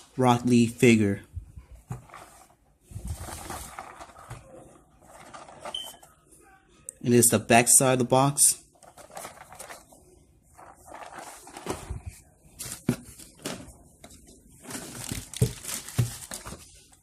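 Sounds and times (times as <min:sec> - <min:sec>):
cardboard packaging rustling: 0:01.8 - 0:06.2, 0:08.8 - 0:17.0.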